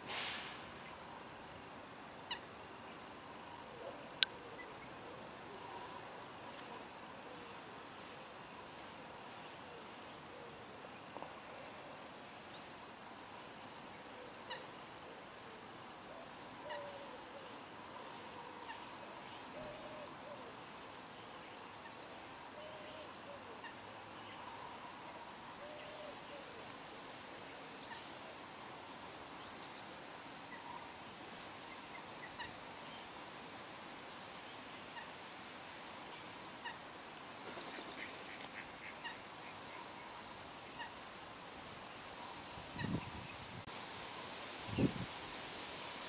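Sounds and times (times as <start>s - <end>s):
soft bird calls: 2.3s - 26.8s.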